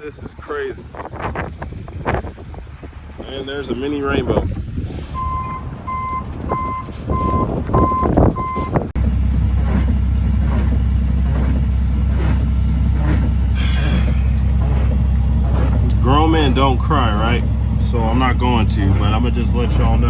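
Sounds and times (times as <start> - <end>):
steady low hum: 0.0 - 20.0
vehicle running noise: 0.0 - 20.0
reversing alarm beeping: 5.2 - 8.9.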